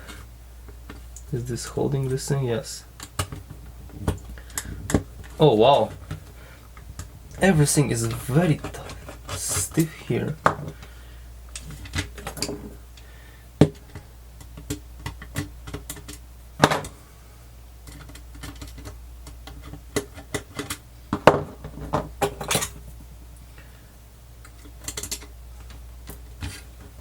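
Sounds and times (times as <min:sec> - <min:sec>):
clicks and taps of plastic parts: 0:17.9 - 0:22.7.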